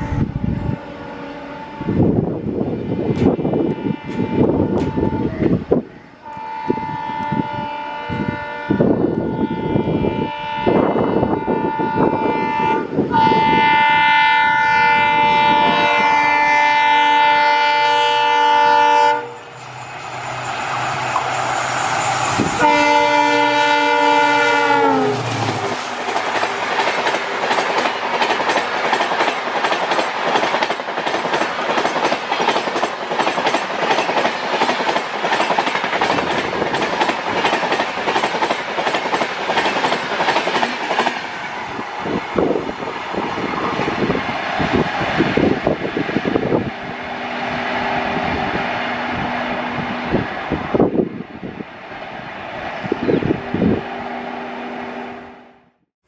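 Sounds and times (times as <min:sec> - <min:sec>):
locomotive air horn: 0:03.5 - 0:05.5, 0:06.2 - 0:19.6, 0:22.3 - 0:25.8
coaches rushing past with wheel clatter: 0:19.4 - 0:22.7.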